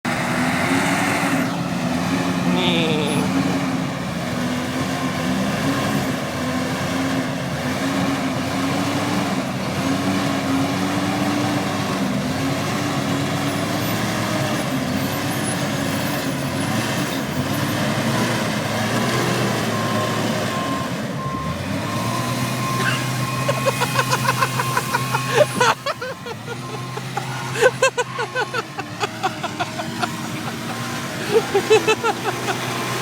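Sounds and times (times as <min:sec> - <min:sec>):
truck engine running: 0:00.0 - 0:33.0
reversing alarm beeping: 0:12.8 - 0:33.0.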